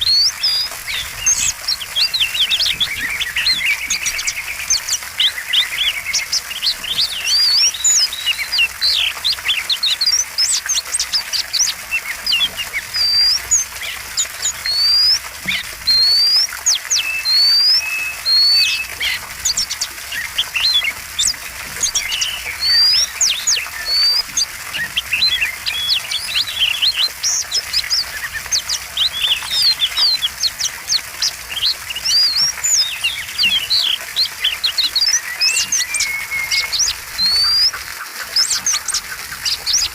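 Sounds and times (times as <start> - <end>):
bird singing chirps and whistles: 0.0 - 39.9.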